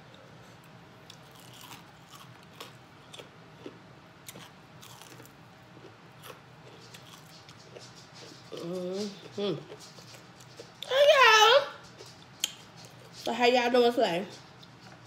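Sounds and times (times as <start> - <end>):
crunchy chewing of fried chicken: 0.0 - 10.9.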